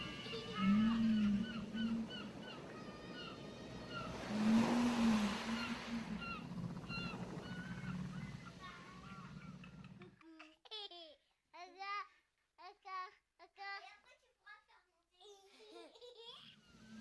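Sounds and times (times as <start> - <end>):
ocean surf washing ashore: 0.0 - 9.9.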